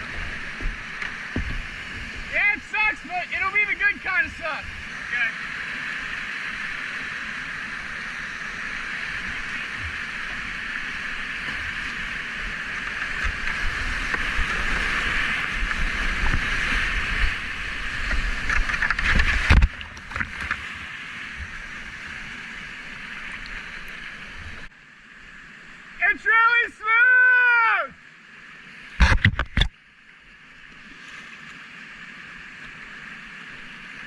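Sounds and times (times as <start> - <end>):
whitewater rapids rushing: 0.0 - 19.6
water splashing: 0.0 - 24.7.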